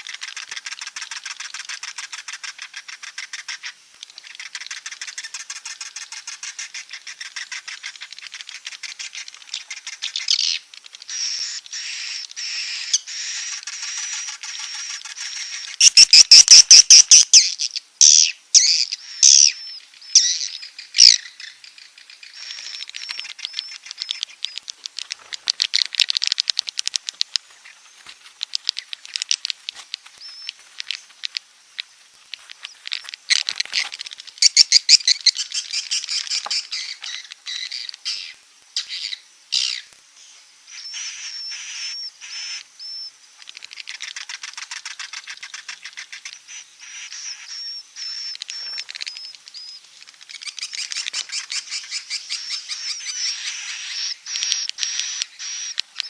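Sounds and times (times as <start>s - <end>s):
swiftlets chirping and clicking: 0.0s - 19.5s, 20.1s - 39.0s, 43.4s - 56.0s.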